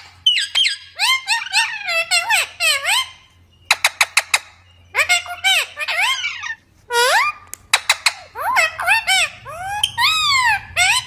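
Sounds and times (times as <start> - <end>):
parrot squawking: 0.0 - 11.0
parrot clicks: 7.4 - 8.1.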